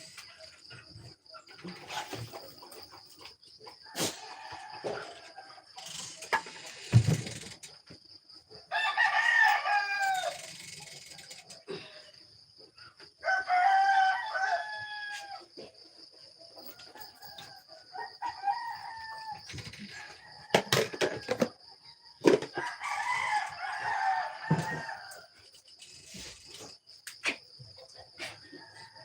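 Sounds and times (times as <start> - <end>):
rooster crowing: 3.9 - 6.0, 8.7 - 10.6, 13.2 - 15.5, 16.7 - 25.4.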